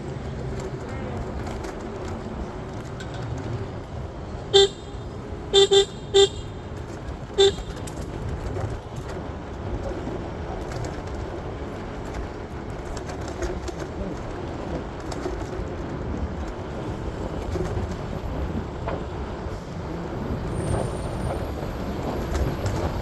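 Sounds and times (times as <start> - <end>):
traffic noise: 0.0 - 23.0
vehicle horn honking: 4.5 - 6.6, 7.4 - 7.8.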